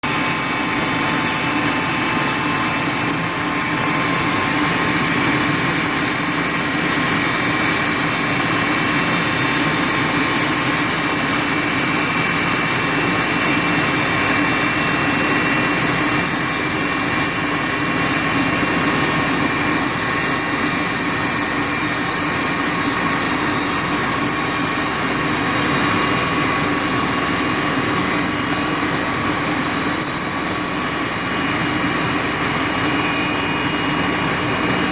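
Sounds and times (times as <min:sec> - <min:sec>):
helicopter rotor noise: 0:00.0 - 0:34.9
helicopter turbine whine: 0:00.0 - 0:34.9.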